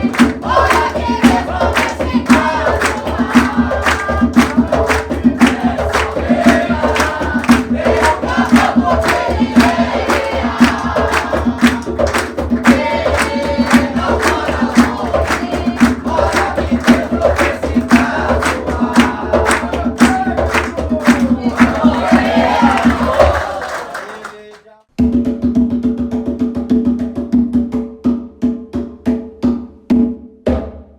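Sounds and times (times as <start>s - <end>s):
hand drums beating: 0.0s - 23.5s, 25.0s - 30.8s
group singing a chant: 0.0s - 24.4s.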